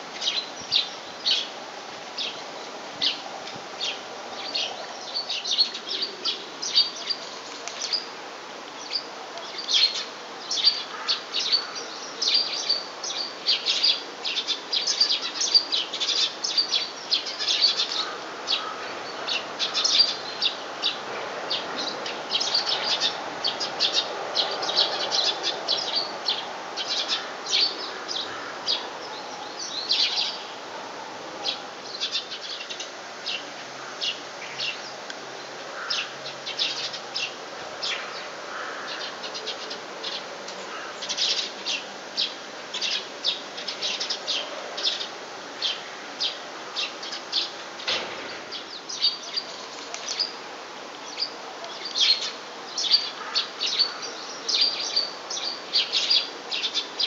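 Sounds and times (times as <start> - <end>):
small birds chirping: 0.2 - 30.7, 31.4 - 50.4, 51.0 - 57.0.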